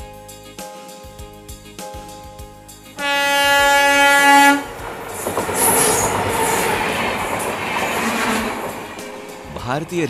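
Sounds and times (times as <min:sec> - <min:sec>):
train horn: 0:03.0 - 0:08.8
train rumbling on rails: 0:03.4 - 0:10.0.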